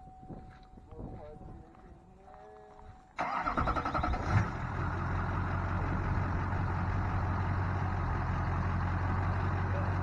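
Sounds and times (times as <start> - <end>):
diesel engine cranking: 3.2 - 10.0
diesel engine idling: 3.2 - 10.0.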